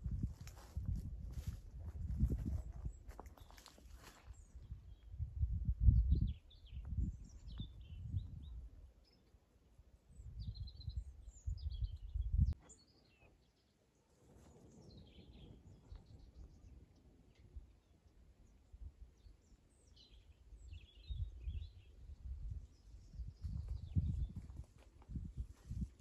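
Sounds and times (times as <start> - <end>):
low rumbling microphone noise: 0.0 - 3.2, 4.6 - 8.7
small birds chirping: 1.4 - 9.4, 10.0 - 25.9.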